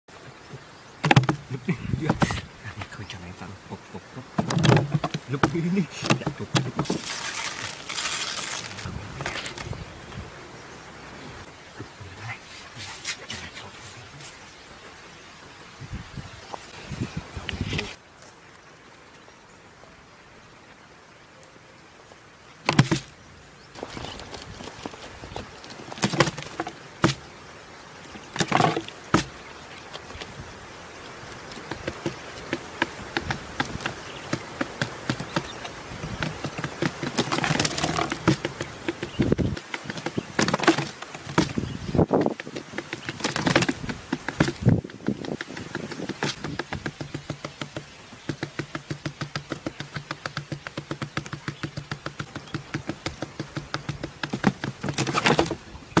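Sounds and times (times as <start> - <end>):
sharp clicks and knocks: 1.0 - 1.5, 4.3 - 9.7, 31.5 - 56.0.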